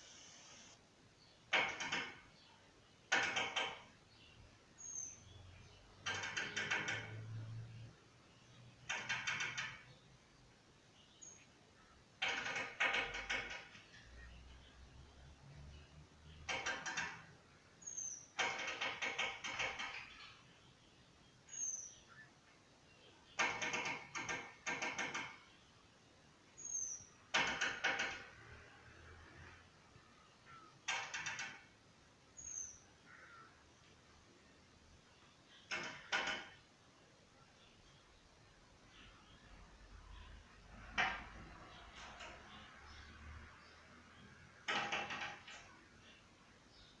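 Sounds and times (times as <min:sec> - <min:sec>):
small bird scratchy calls: 0:00.0 - 0:00.8.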